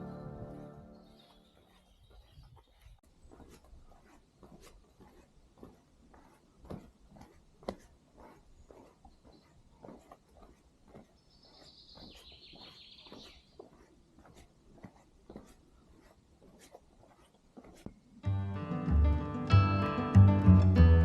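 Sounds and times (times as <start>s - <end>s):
acoustic guitar music: 0.0s - 1.0s, 18.2s - 21.0s.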